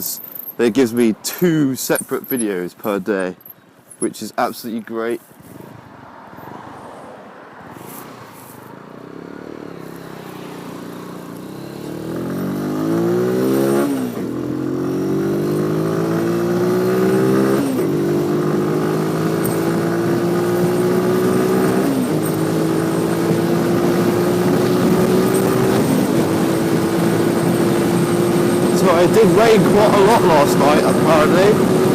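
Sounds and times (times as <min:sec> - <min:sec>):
motorcycle engine accelerating: 0:08.8 - 0:31.9.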